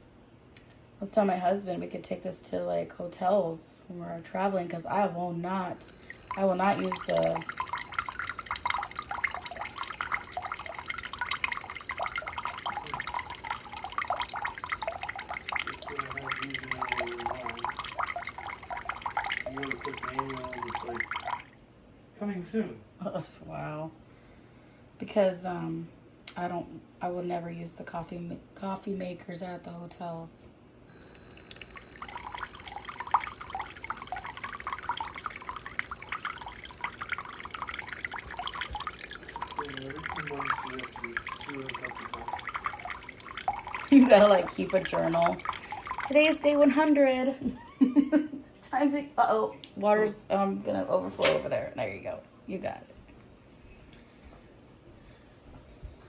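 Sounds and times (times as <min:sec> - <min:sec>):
coffee maker dripping into cup: 0:05.8 - 0:21.7, 0:30.9 - 0:46.9.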